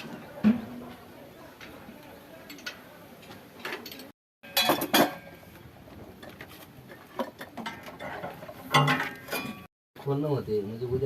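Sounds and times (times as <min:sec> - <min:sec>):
metal tools clanking: 0:07.2 - 0:09.7.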